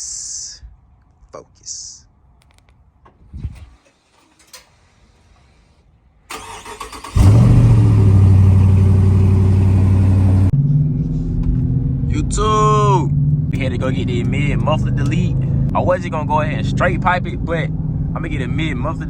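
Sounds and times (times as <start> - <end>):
car engine starting and idling: 6.3 - 12.1, 13.4 - 15.5.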